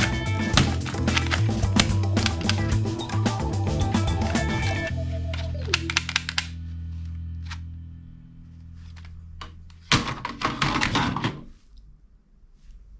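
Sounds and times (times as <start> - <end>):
rapid clicking and clatter: 0.0 - 4.9
sharp clicks: 0.0 - 4.9
low held chord of music: 0.0 - 8.9.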